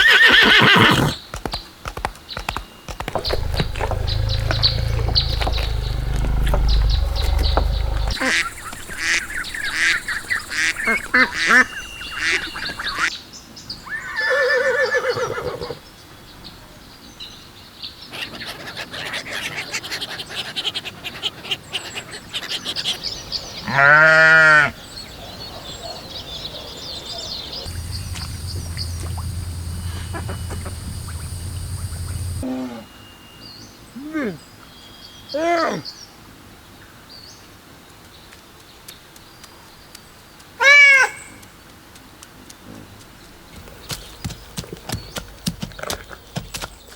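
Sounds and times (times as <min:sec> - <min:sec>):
ducks quacking: 0:27.7 - 0:32.4
geese honking: 0:27.7 - 0:32.4.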